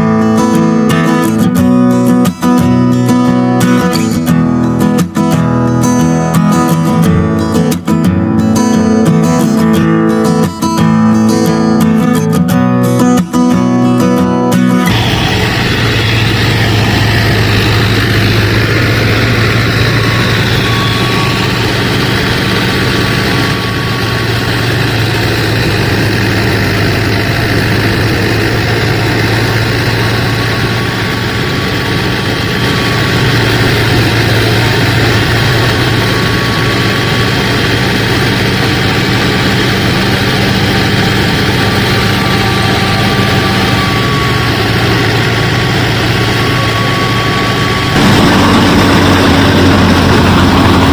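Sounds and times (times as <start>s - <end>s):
faint motor whine: 14.9s - 50.9s
small motor humming: 14.9s - 50.9s.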